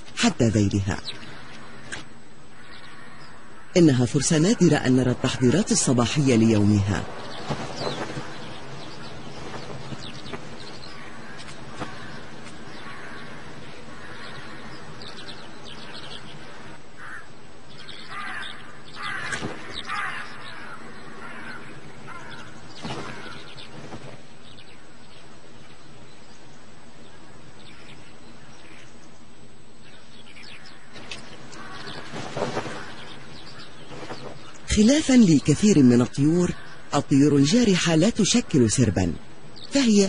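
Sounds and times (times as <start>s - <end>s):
steady background hum: 0.0s - 40.0s
wild birds calling: 0.0s - 40.0s.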